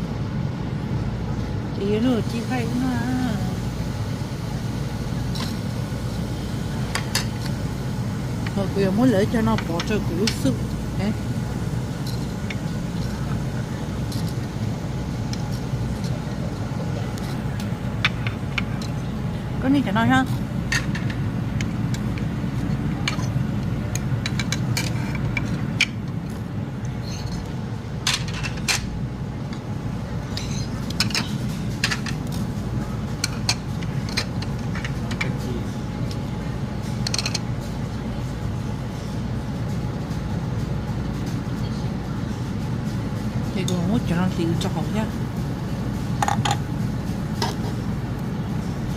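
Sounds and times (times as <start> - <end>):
kitchen utensils and dishes clinking: 28.1 - 28.9, 30.3 - 32.2.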